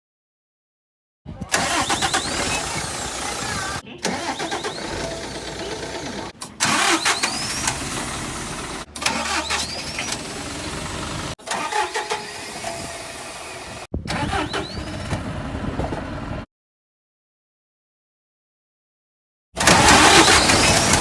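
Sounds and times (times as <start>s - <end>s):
diesel bus engine starting: 1.4s - 16.5s, 19.6s - 21.0s.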